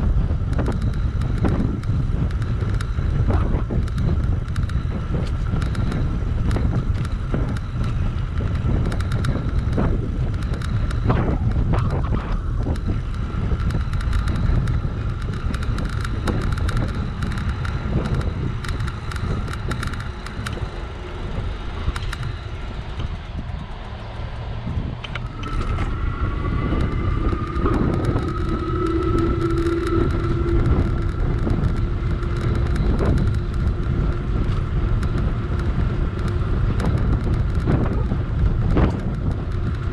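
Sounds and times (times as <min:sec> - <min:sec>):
faint steady whine: 0:00.0 - 0:39.9
knocks and rattles from riding: 0:00.0 - 0:39.9
low hum: 0:00.0 - 0:39.9
wind rumbling on microphone: 0:00.0 - 0:39.9
rising tone: 0:24.6 - 0:35.5.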